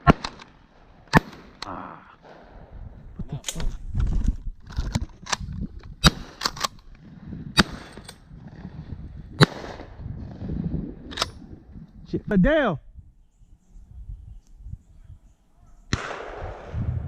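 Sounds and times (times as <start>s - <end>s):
shotgun shots: 1.1s - 1.6s, 6.0s - 6.7s, 7.6s - 8.0s, 9.4s - 10.0s, 15.9s - 17.0s
wind rumble on microphone: 2.3s - 17.0s.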